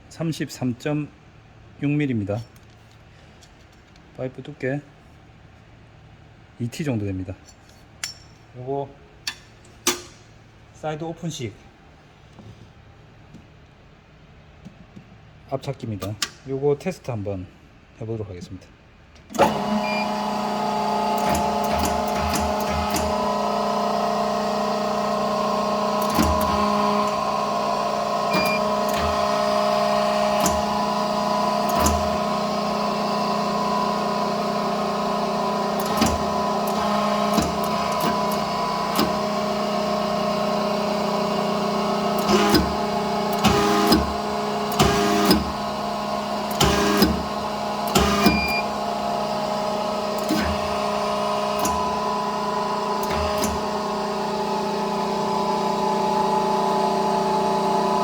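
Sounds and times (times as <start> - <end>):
motor and pump hum: 19.3 - 58.0
sharp clicks and knocks: 42.2 - 45.6, 46.5 - 47.3.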